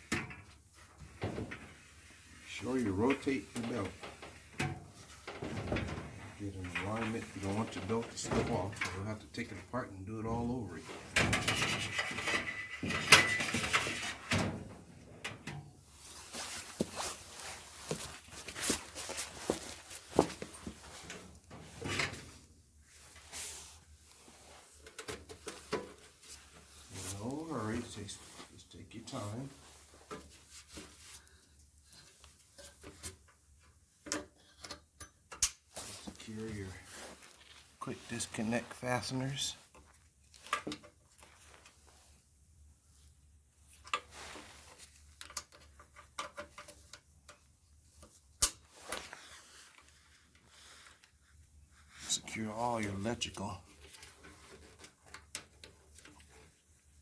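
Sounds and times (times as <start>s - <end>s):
dryer parts clicking and knocking: 0.0s - 1.8s, 3.1s - 9.1s, 11.0s - 15.8s, 45.2s - 47.4s
parts sliding and scraping: 10.9s - 14.3s.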